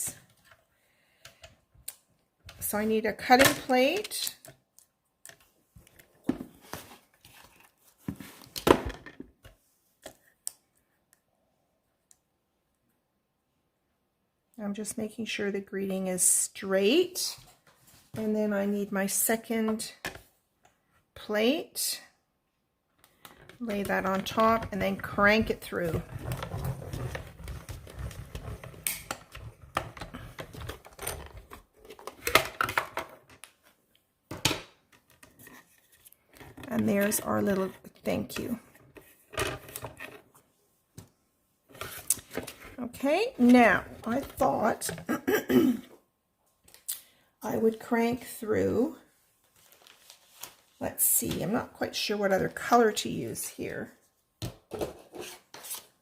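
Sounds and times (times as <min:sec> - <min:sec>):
paper rustling: 0:49.4 - 0:50.8.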